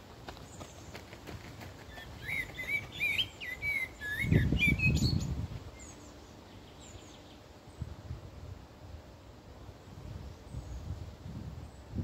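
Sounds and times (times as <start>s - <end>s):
songbird singing whistled notes: 1.9s - 7.8s.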